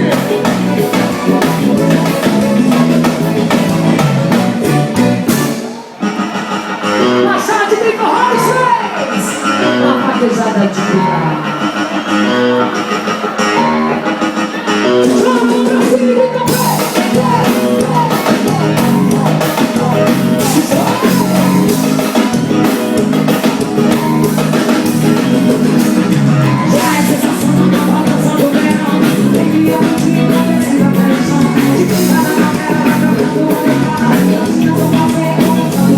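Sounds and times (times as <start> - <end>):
person singing: 0.0 - 5.9, 14.6 - 35.9
band playing: 0.0 - 35.9.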